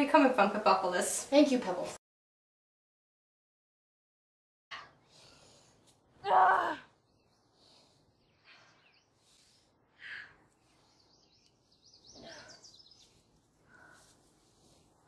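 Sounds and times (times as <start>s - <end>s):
bird chirping: 7.0s - 9.6s, 10.5s - 13.4s
woman gasping breathily: 13.6s - 14.5s.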